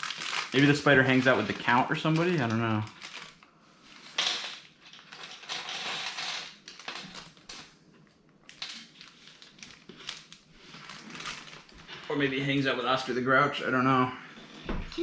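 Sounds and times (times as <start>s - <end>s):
plastic bags crinkling: 0.0s - 7.8s, 8.4s - 12.3s.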